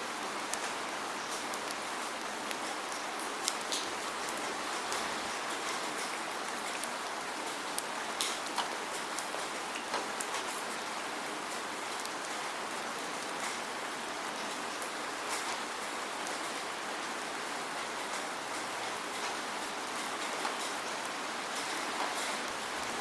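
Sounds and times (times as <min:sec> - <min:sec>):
steady rain falling: 0:00.0 - 0:23.0
raindrops ticking: 0:00.1 - 0:13.7.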